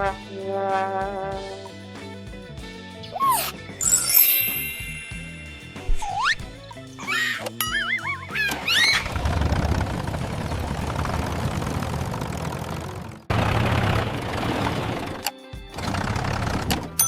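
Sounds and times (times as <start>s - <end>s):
brief high squeal: 3.1s - 9.2s
cartoon tractor engine rumble: 5.9s - 17.0s.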